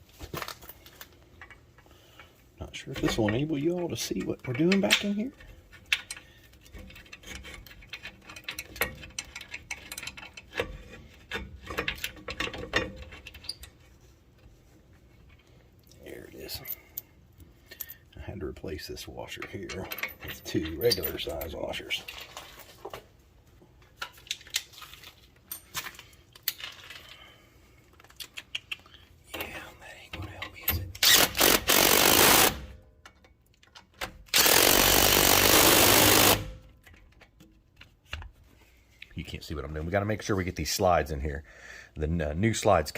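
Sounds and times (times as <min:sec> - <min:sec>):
impact wrench rattling: 0:01.4 - 0:13.8, 0:30.8 - 0:37.9.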